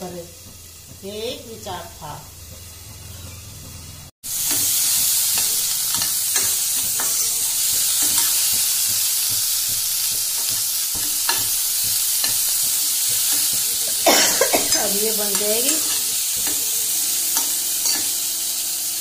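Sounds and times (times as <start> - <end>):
chillies sizzling in a pan: 0.0 - 19.0
spoon scraping a pan: 4.4 - 14.0, 14.7 - 18.7.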